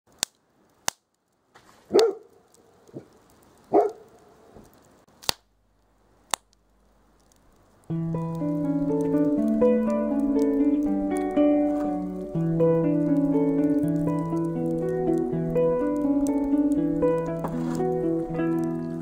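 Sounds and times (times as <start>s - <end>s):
sharp clicks: 0.1s - 1.3s, 2.0s - 18.9s
dog barking: 1.9s - 2.3s, 3.7s - 4.2s
solo guitar playing: 7.9s - 19.0s.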